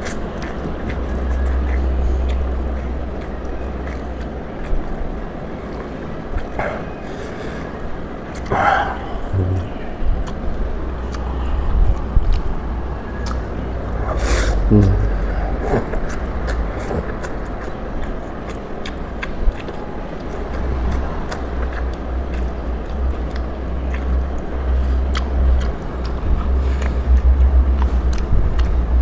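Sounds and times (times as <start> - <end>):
slurping and chewing noodles: 0.0 - 29.0
low rumble: 8.4 - 18.0, 20.6 - 29.0.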